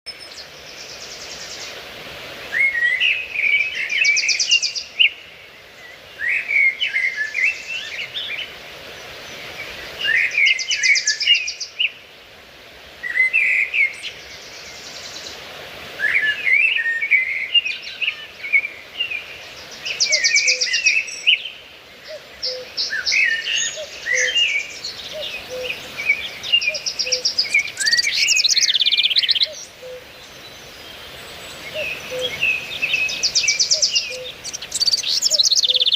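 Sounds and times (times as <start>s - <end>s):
faint outdoor background: 0.1s - 35.9s
songbirds chirping: 0.1s - 35.9s.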